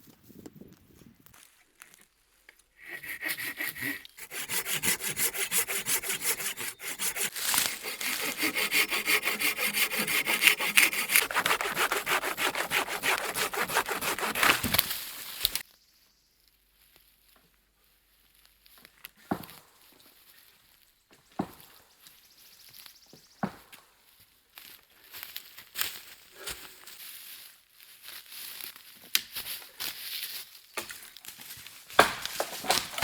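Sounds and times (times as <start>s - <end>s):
hand saw cutting wood: 2.8s - 15.6s, 32.0s - 33.0s.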